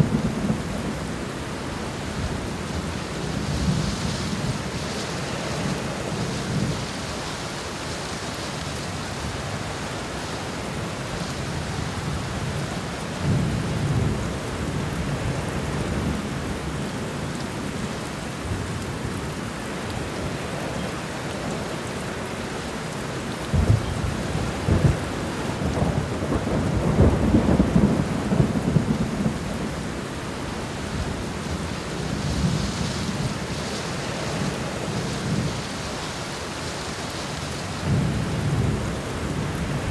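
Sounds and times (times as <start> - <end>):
steady rain: 0.0 - 39.9
rolling thunder: 23.5 - 30.0.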